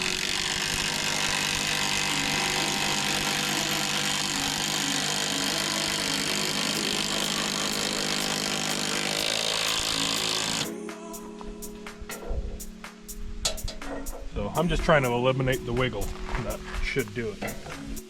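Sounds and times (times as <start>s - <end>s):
impact driver rattling: 0.0s - 10.7s.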